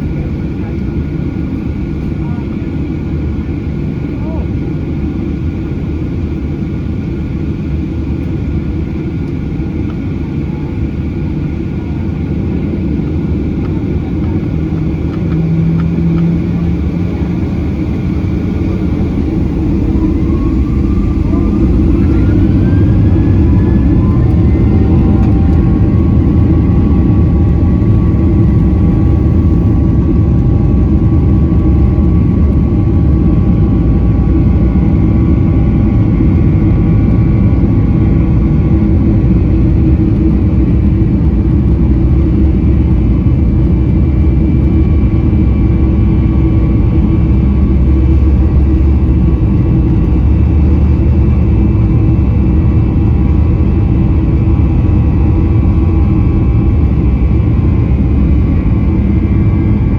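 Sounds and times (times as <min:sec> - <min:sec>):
aircraft cabin rumble: 0:00.0 - 0:59.9
jet engines spooling up: 0:13.3 - 0:42.9.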